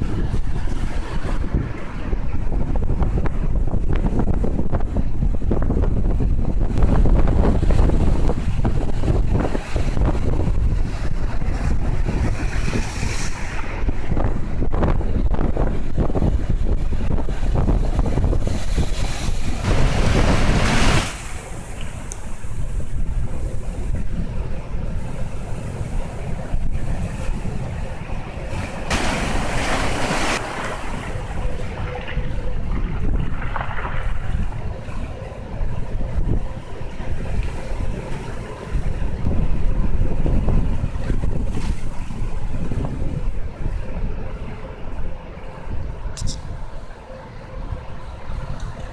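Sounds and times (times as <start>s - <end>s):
sea surf churning: 0.0s - 4.2s, 4.8s - 48.9s
wind buffeting microphone: 0.0s - 48.9s.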